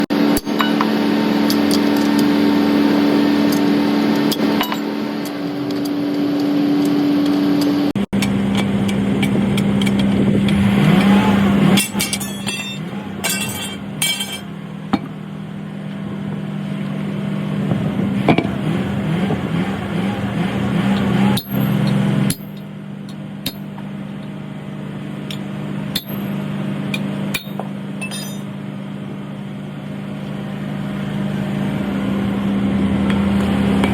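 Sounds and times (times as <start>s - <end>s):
engine hum: 0.0s - 33.9s
metal tools clinking on wheel rim: 4.2s - 6.0s, 11.0s - 15.1s, 20.9s - 24.4s, 25.2s - 28.6s.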